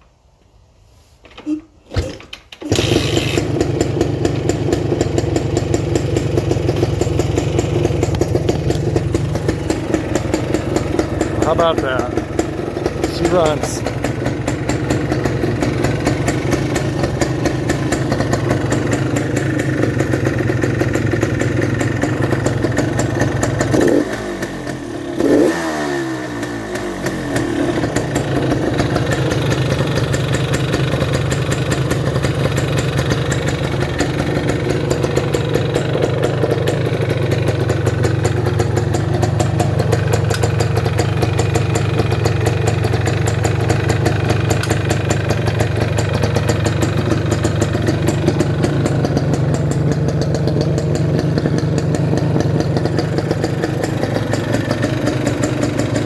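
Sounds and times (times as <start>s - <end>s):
motorcycle engine idling: 2.7s - 56.0s.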